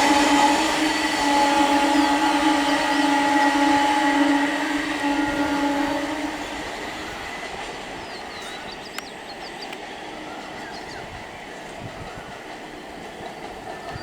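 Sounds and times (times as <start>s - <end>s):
electric train motor whine: 0.0s - 12.3s
rail rumble: 0.0s - 14.0s.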